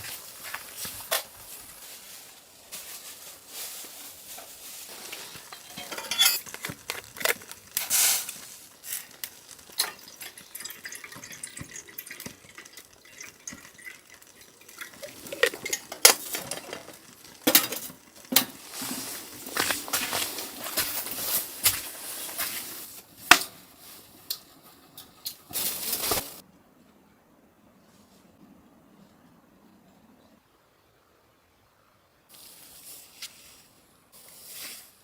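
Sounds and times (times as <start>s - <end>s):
utensils clinking against cookware: 4.9s - 7.5s, 9.0s - 26.4s.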